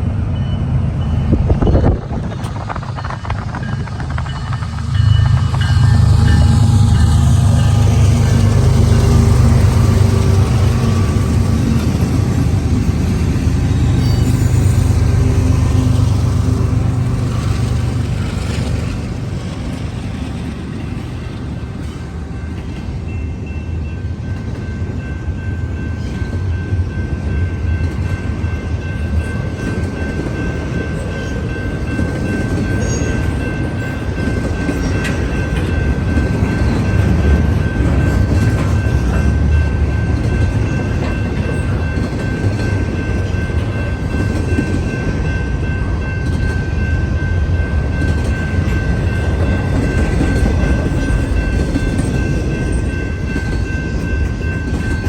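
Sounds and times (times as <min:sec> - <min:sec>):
freight train rumbling: 0:00.0 - 0:55.0
high-pitched whine: 0:00.1 - 0:19.2.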